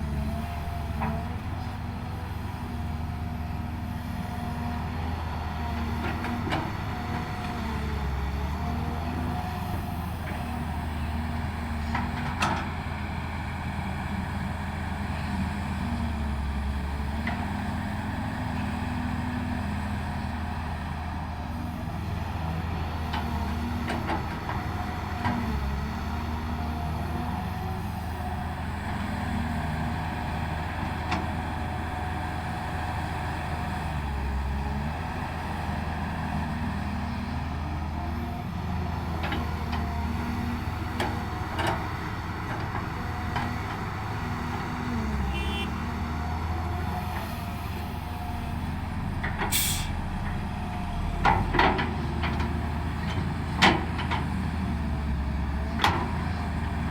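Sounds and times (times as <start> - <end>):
heavy diesel engine running: 0.0 - 56.9
sharp hiss of air: 49.5 - 50.0.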